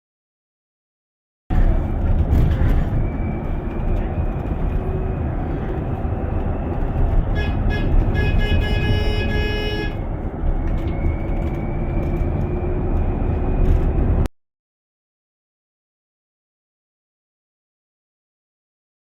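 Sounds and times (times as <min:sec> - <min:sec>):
heavy vehicle rumble: 0:01.5 - 0:14.3
vehicle horn: 0:07.2 - 0:10.2.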